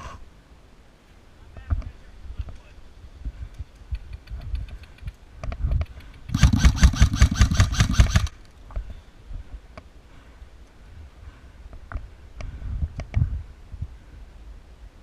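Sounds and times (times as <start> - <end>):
airsoft rifle firing burst: 6.2 - 8.4.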